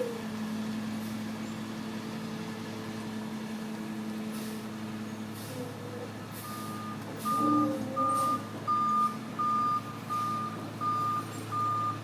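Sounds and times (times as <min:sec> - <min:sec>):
truck engine running: 0:00.0 - 0:12.0
truck backup alarm beeping: 0:06.4 - 0:12.0.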